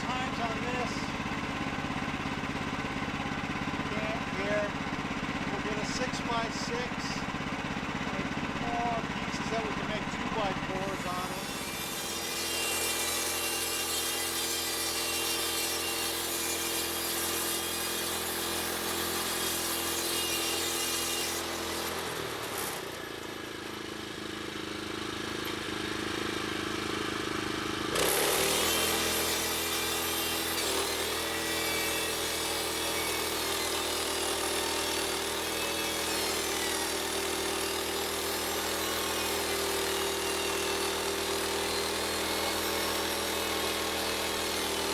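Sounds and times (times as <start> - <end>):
gas engine humming: 0.0 - 11.4
band blade sawing log: 0.0 - 24.4, 25.4 - 44.9.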